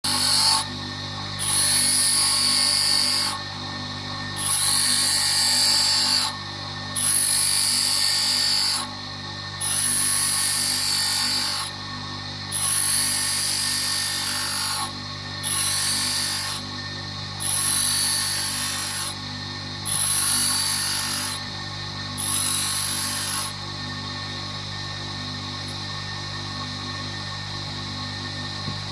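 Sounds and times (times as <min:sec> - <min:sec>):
high-pitched grinding of drill bit: 0:00.0 - 0:00.7, 0:01.3 - 0:03.4, 0:04.3 - 0:06.4, 0:07.0 - 0:08.9, 0:09.6 - 0:11.7, 0:12.5 - 0:16.6, 0:17.4 - 0:19.2, 0:19.8 - 0:21.5, 0:22.2 - 0:23.6
grinder motor hum: 0:00.0 - 0:28.9.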